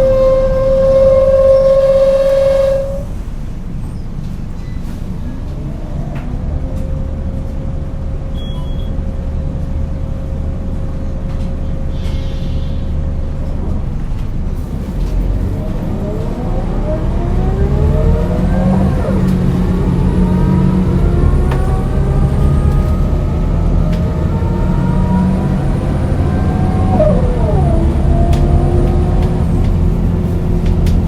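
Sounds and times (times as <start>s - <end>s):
bus engine revving: 13.5s - 31.0s.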